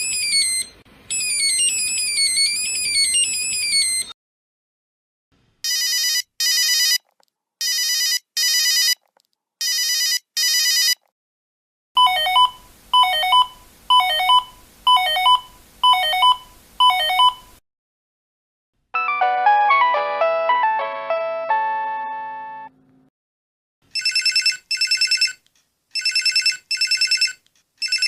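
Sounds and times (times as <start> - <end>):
melodic ringtone: 12.0 - 17.4, 19.0 - 22.7.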